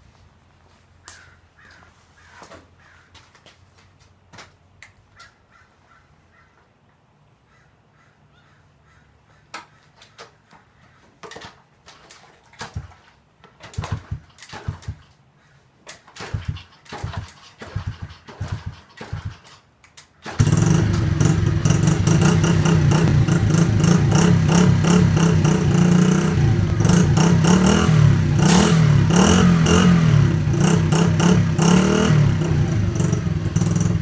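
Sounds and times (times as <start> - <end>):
cawing calls: 1.0 - 3.2, 5.1 - 6.6, 7.5 - 10.2
dirt bike kick-start kicks: 11.2 - 15.2, 15.9 - 34.0
engine sputtering: 13.8 - 15.1, 16.2 - 19.6, 20.2 - 34.0.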